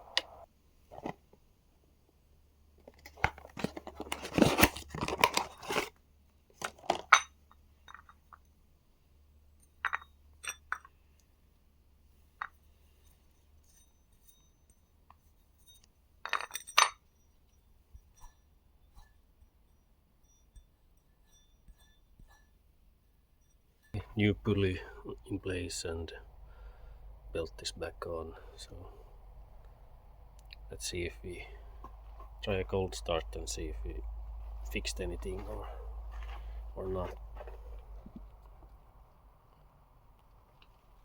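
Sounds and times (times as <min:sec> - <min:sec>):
metal tools clinking and rattling: 0:15.7 - 0:17.0.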